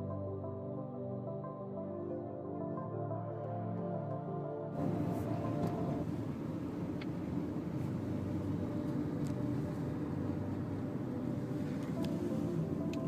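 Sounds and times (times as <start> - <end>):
background music: 0.0 - 13.0
low rumble of vehicle noise: 2.8 - 13.0.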